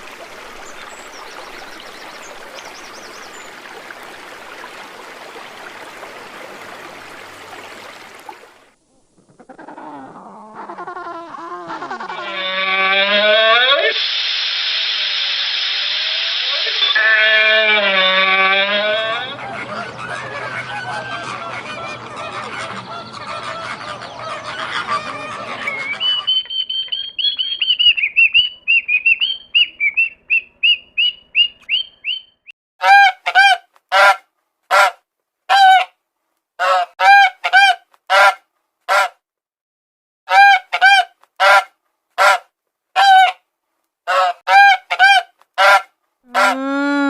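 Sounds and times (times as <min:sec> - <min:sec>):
bird calls: 0:19.4 - 0:32.5
short high bird chirps: 0:26.0 - 0:32.5.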